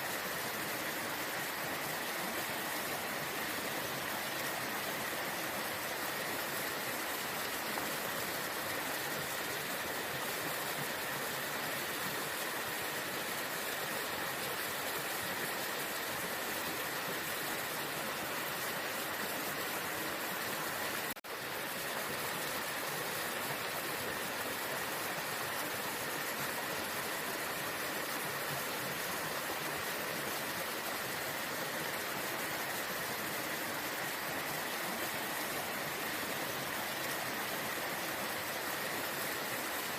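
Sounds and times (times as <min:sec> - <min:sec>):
waterfall rushing: 0:22.5 - 0:39.9.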